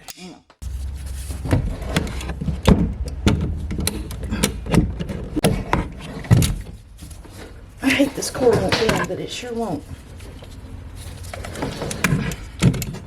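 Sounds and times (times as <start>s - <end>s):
low rumble: 0.6s - 7.1s
handling knocks and rubs: 0.6s - 13.0s.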